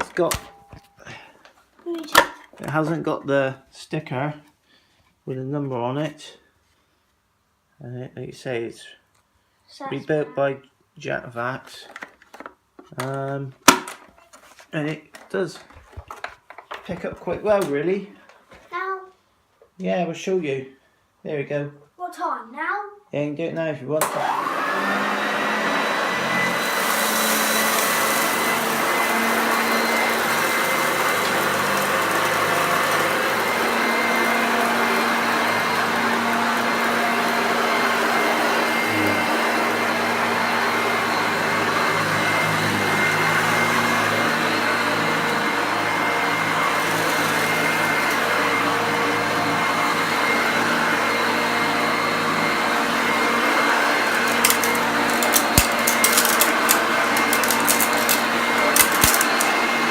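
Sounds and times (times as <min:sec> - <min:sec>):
vacuum cleaner running: 0:00.0 - 0:01.4, 0:24.0 - 0:59.9.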